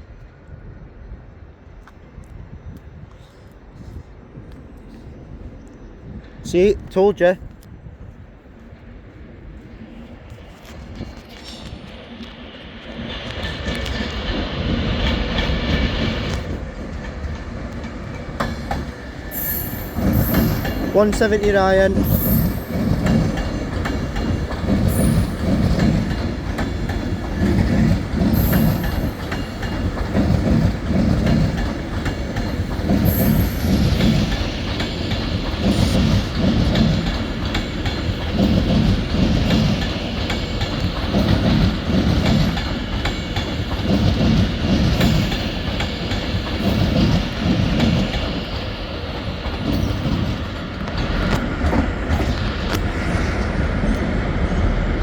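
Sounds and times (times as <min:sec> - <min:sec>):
train wheels clattering over joints: 0:13.0 - 0:53.5.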